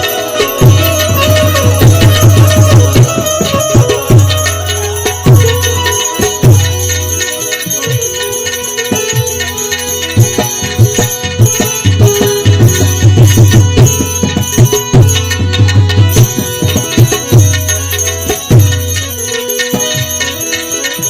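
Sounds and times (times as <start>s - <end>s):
hand drum strokes: 0.0s - 20.3s
jingling percussion: 0.0s - 21.0s
steady held notes: 0.0s - 21.0s.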